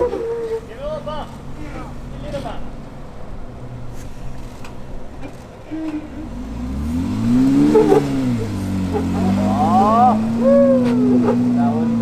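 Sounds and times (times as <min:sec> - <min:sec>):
engine revving: 0:06.1 - 0:12.0.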